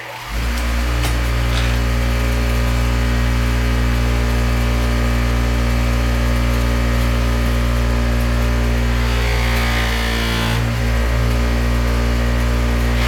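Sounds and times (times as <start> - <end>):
electric sander motor hum: 7.9 - 13.0
wood rasping on abrasive: 8.0 - 13.0.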